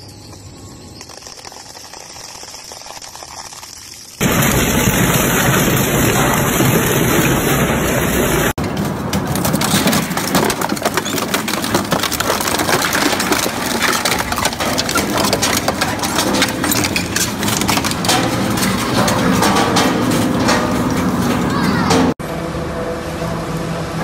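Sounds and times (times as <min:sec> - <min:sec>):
shredder machine drone: 0:04.2 - 0:09.5, 0:13.7 - 0:24.0.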